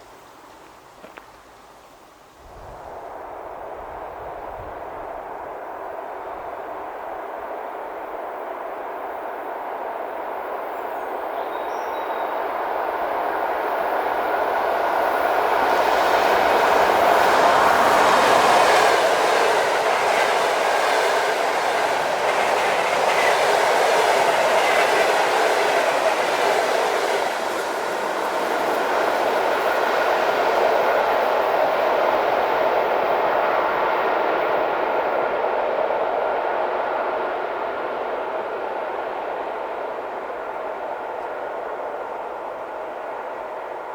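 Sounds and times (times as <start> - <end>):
electric train passing: 2.2 - 43.9.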